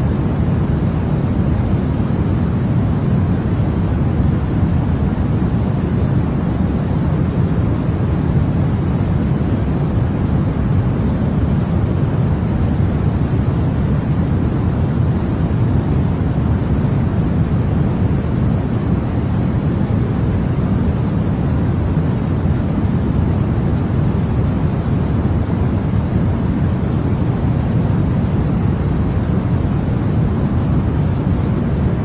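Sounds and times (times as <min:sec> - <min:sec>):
deep white noise hiss: 0:00.0 - 0:32.0.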